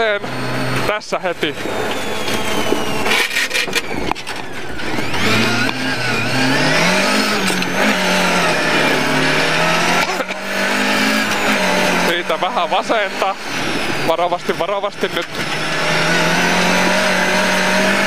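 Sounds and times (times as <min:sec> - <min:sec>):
rally car engine revving: 0:00.0 - 0:18.0
tyre and chassis noise: 0:00.0 - 0:18.0.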